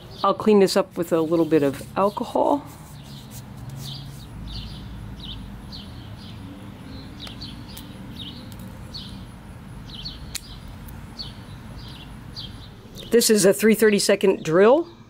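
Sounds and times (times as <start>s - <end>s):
small bird chirping: 1.2s - 13.2s
sharp click: 10.3s - 10.6s.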